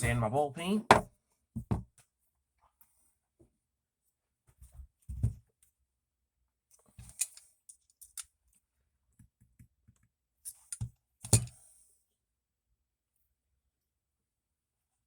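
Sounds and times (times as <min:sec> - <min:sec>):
metal tools clicking and knocking: 0:07.0 - 0:08.3, 0:10.5 - 0:11.6.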